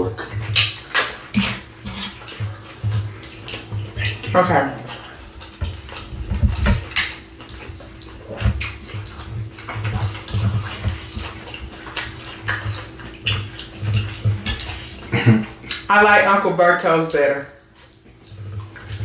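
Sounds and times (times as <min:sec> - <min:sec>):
wet chewing: 0:00.0 - 0:16.3, 0:17.1 - 0:19.0
mouth smacks and clicks: 0:00.2 - 0:06.1, 0:11.5 - 0:15.9.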